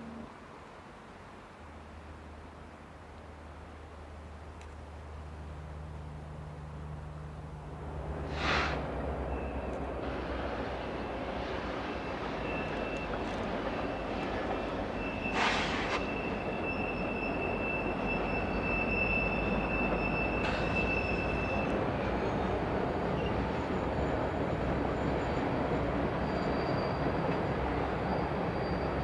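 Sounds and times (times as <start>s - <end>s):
freight train rumbling on rails: 0.0s - 29.0s
high wheel squeal: 11.9s - 29.0s.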